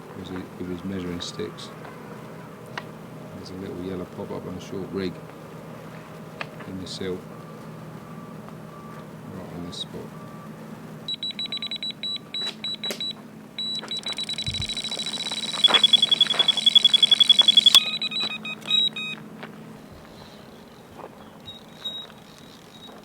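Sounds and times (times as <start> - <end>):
bite alarm beeping: 6.7 - 19.2, 21.4 - 23.0
lower alarm tone: 6.9 - 19.2.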